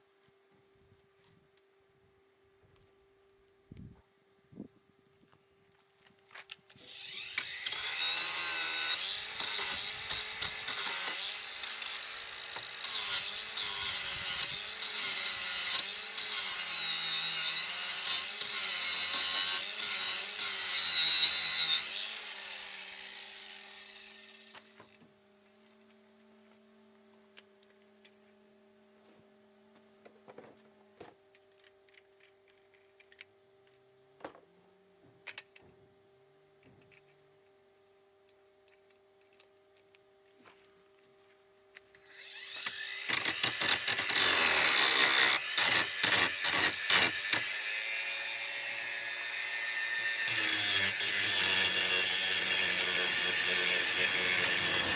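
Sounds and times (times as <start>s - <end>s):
electric saw cutting wood: 6.8s - 24.9s, 42.0s - 54.9s.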